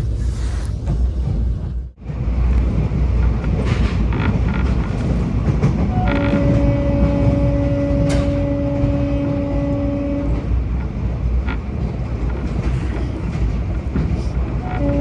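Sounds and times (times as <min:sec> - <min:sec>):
train rumbling on rails: 0:00.0 - 0:15.0
train horn two-note blast: 0:05.9 - 0:10.6, 0:14.6 - 0:15.0.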